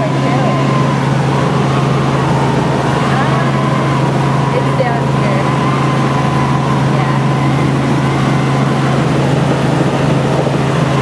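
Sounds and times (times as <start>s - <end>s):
helicopter rotor drone: 0.0s - 11.0s
high whine: 0.0s - 11.0s.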